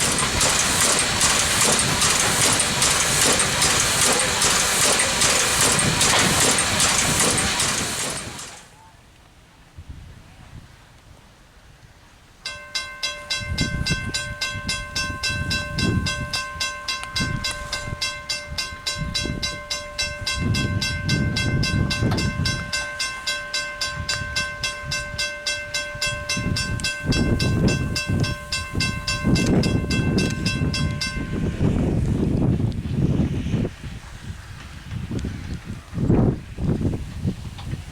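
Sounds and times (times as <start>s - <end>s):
railroad crossing bell ringing: 12.4s - 32.0s
gusty low rumble: 26.2s - 37.9s.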